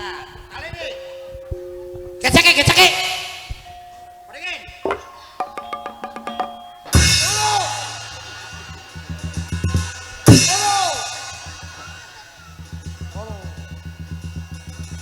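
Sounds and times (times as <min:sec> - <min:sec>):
drum roll: 0:05.4 - 0:15.0
cymbal and bass drum crash: 0:07.0 - 0:15.0.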